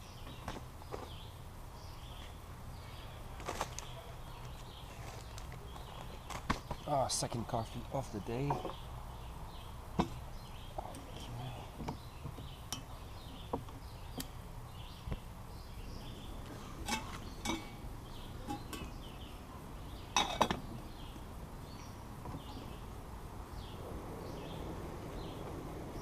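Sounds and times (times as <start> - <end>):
cookware clinking and clattering: 16.8 - 17.8.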